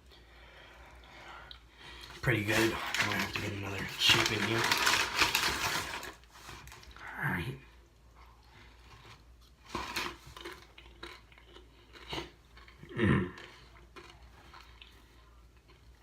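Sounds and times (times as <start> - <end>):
crunching corn chips: 2.3 - 7.0, 8.9 - 16.0.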